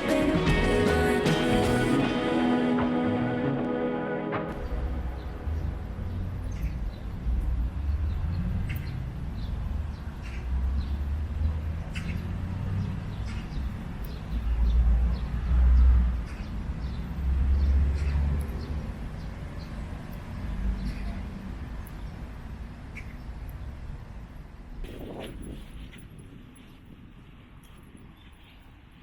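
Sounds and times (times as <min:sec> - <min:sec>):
low rumble: 0:00.0 - 0:08.0.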